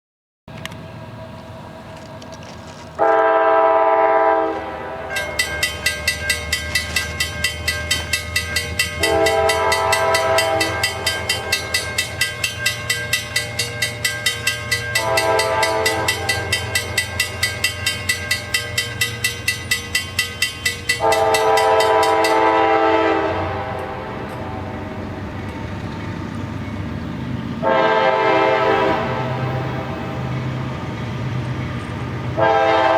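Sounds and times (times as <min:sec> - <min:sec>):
locomotive engine rumble: 0:00.5 - 0:32.9
locomotive air horn blasts: 0:03.0 - 0:05.3, 0:09.0 - 0:11.6, 0:14.9 - 0:17.0, 0:20.9 - 0:24.8, 0:27.6 - 0:30.0, 0:32.4 - 0:32.9
locomotive bell ringing: 0:04.8 - 0:27.4.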